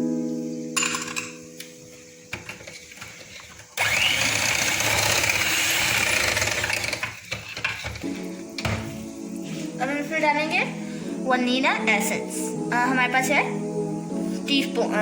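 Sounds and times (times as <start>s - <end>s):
electric hand beater whine: 2.3s - 8.0s.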